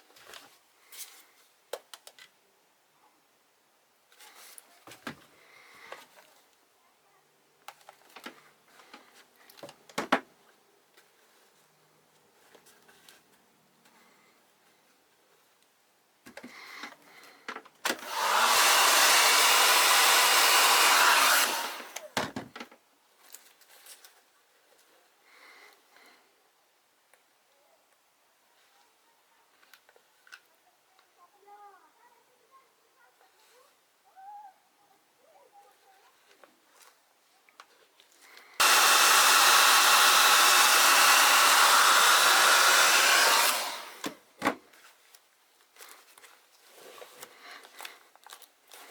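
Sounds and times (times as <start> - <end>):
hot-air blower running: 17.9 - 22.2, 38.6 - 44.2.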